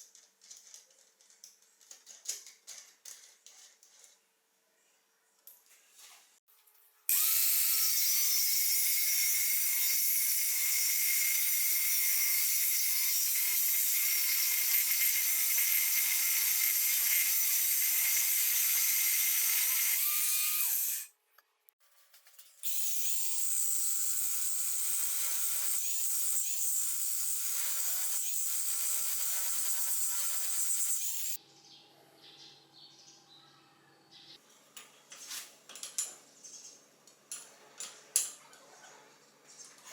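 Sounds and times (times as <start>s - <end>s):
small power tool whining: 7.1s - 21.1s.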